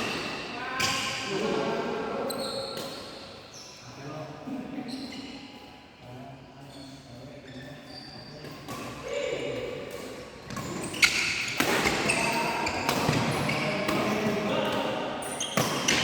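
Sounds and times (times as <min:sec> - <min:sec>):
players' voices: 0:00.5 - 0:02.8, 0:11.8 - 0:16.0.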